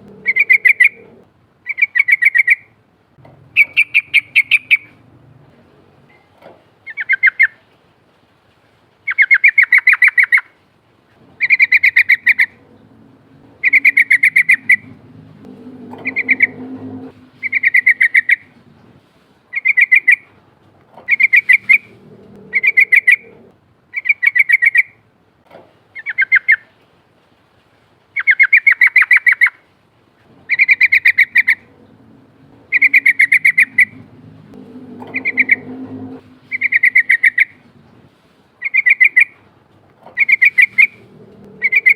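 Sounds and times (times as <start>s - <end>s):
bird singing bubbling phrases: 0.0s - 2.7s, 3.5s - 5.0s, 11.4s - 15.0s, 15.8s - 16.6s, 17.2s - 18.6s, 21.1s - 24.9s, 30.5s - 37.6s, 38.6s - 39.4s, 40.2s - 41.9s
faint low rumble: 0.0s - 6.9s, 11.1s - 24.0s, 30.0s - 41.9s.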